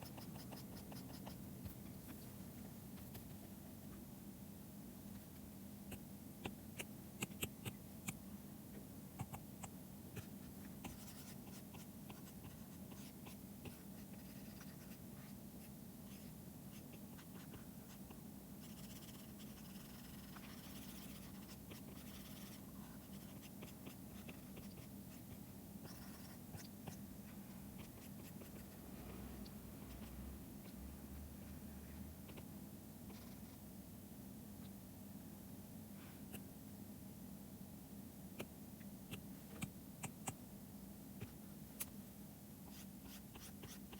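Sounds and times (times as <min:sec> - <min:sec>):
stylus scratching on tablet: 0:00.0 - 0:01.4, 0:10.2 - 0:27.0, 0:27.8 - 0:28.8, 0:33.1 - 0:33.6, 0:42.7 - 0:43.9.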